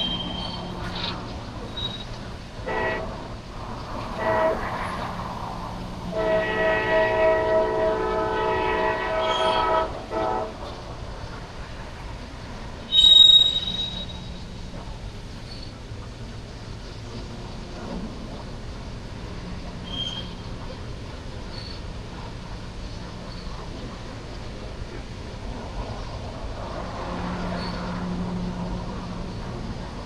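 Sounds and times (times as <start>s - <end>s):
loud high-pitched squeal: 0.0s - 3.0s, 6.2s - 9.8s, 12.9s - 14.5s, 19.8s - 20.4s, 27.4s - 28.0s
low engine rumble: 0.0s - 12.9s, 13.6s - 30.0s
locomotive air horn blasts: 2.6s - 3.4s, 4.0s - 5.2s, 6.0s - 10.7s, 12.9s - 14.4s.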